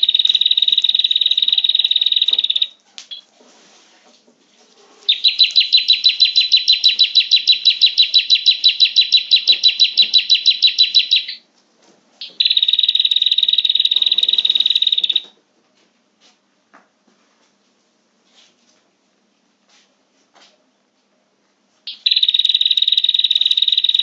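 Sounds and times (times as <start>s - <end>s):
bird trilling: 5.1s - 11.4s.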